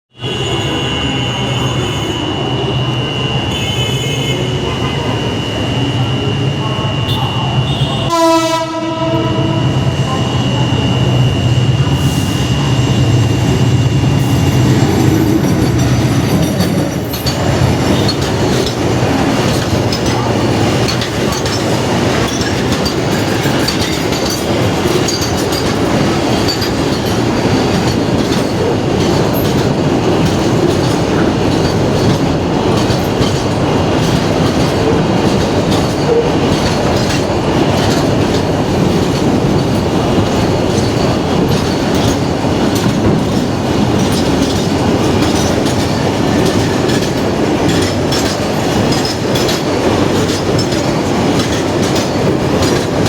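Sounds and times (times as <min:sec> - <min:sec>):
train wheels clattering over rail joints: 0:14.1 - 0:53.0.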